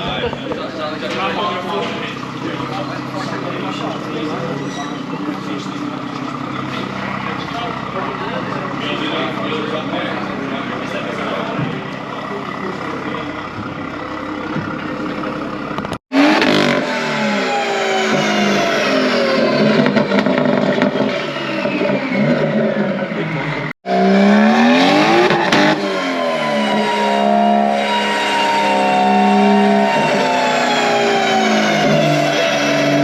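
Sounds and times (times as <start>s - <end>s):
car engine revving on dyno: 16.0s - 33.0s.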